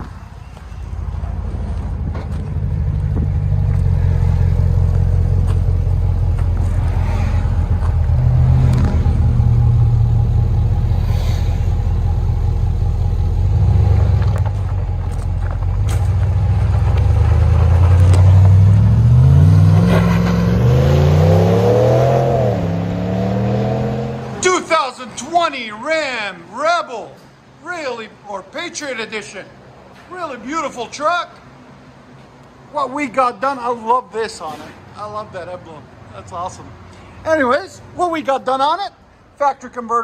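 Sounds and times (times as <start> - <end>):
truck exhaust drone: 0.0 - 24.4.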